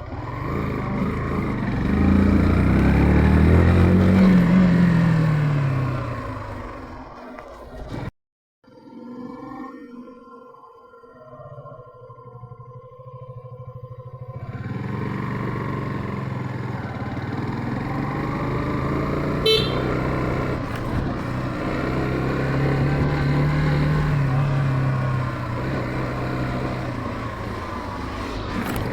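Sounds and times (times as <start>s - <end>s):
motorcycle engine running: 0.0s - 6.8s, 14.1s - 28.9s
horn beep: 19.4s - 20.3s.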